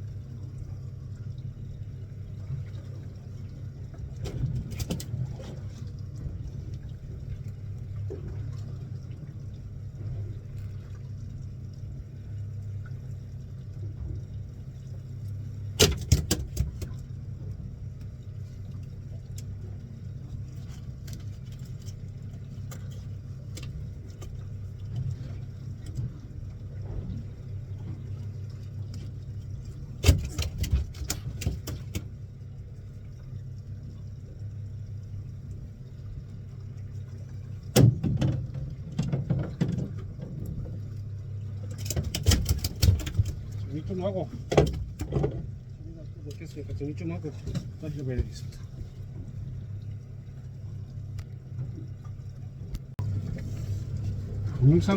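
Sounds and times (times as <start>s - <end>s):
boat engine running: 0.0s - 54.9s
sharp knocks and clatter: 41.7s - 43.5s.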